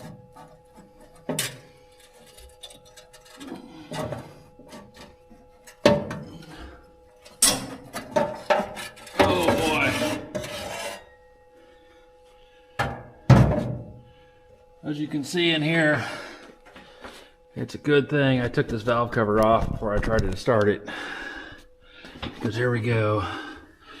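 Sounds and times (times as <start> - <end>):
faint steady hum: 0.0 - 24.0
scraping and rubbing: 8.4 - 11.2.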